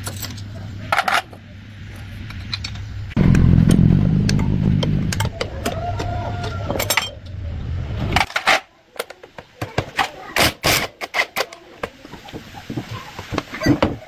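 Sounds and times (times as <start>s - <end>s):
motorcycle engine running: 3.2s - 6.3s.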